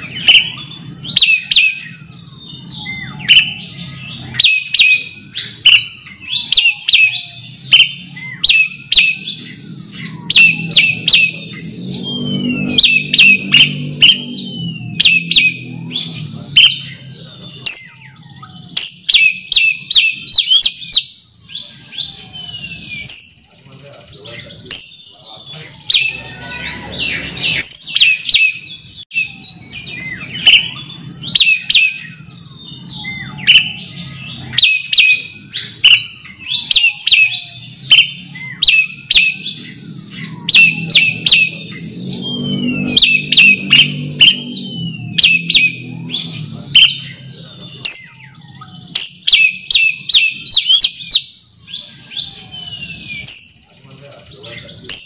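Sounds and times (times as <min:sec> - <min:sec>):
bird singing chattering notes: 0:00.0 - 0:55.0.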